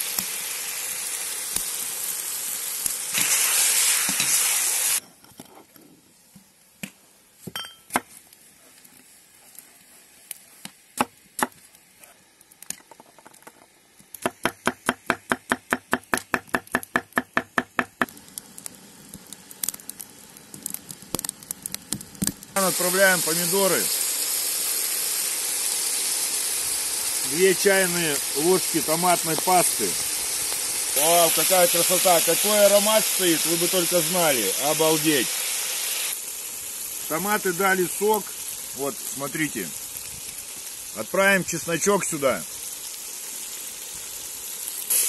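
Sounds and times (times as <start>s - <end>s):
meat and onions sizzling loudly: 0.0s - 5.0s, 7.2s - 45.0s.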